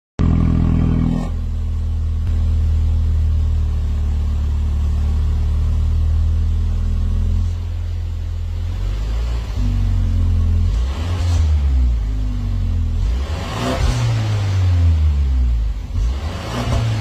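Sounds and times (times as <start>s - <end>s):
car engine idling: 0.2s - 17.0s.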